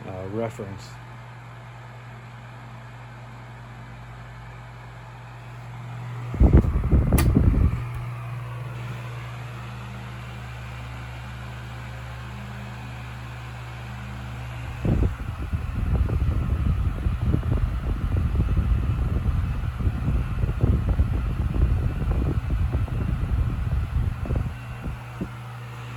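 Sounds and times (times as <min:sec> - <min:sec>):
fan motor humming: 0:00.0 - 0:25.9
bursts of low rumble: 0:06.2 - 0:08.2, 0:14.6 - 0:25.9
fan switch click: 0:06.3 - 0:08.3.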